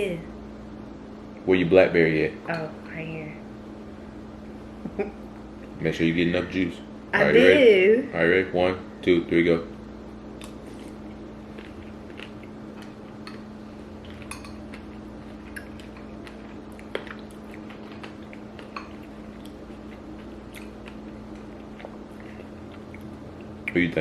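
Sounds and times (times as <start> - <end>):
quiet chewing: 10.4 - 24.0
spoons clinking and scraping bowls: 14.1 - 14.8.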